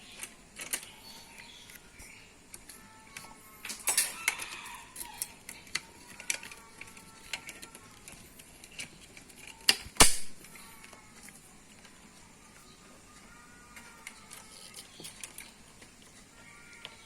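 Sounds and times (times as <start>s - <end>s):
faint background music: 0.0s - 17.0s
clicks and knocks of handling: 0.1s - 0.9s.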